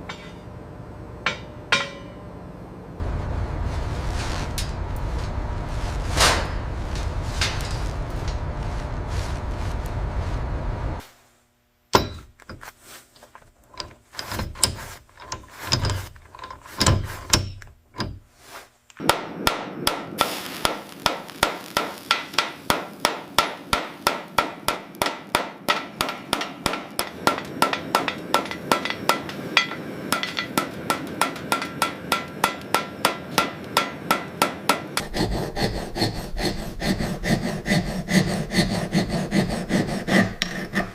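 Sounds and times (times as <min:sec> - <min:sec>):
hammer striking steel bar: 0:00.0 - 0:00.5, 0:01.2 - 0:02.2, 0:11.9 - 0:12.3, 0:19.0 - 0:40.9
steady noise: 0:03.0 - 0:11.9, 0:19.0 - 0:40.9.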